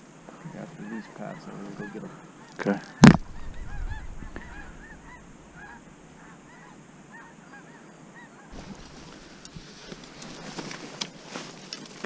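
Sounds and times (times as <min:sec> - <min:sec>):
geese honking: 0:00.4 - 0:09.5.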